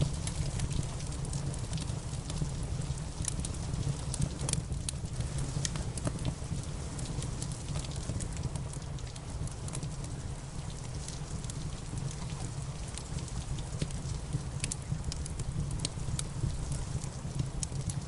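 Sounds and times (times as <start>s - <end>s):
rain patter: 0.0s - 18.0s
wood fire crackling and popping: 0.0s - 18.0s.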